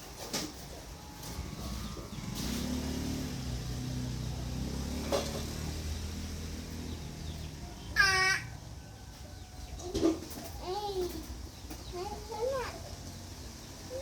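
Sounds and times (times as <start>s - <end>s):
vehicle engine running: 0.8s - 9.8s.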